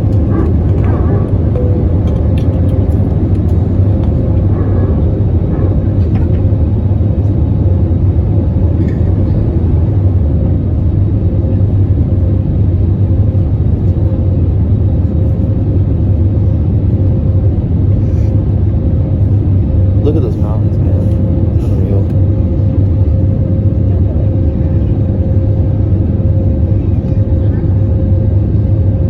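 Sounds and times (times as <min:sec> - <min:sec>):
jet engine roar in cabin: 0:00.0 - 0:29.0.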